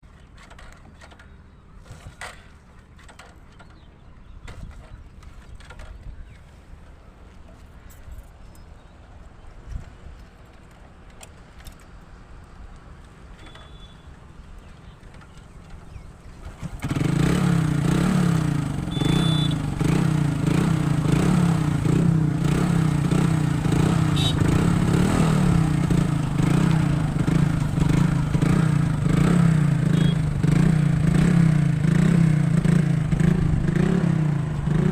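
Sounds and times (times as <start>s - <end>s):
motorcycle engine idling: 13.4s - 34.9s.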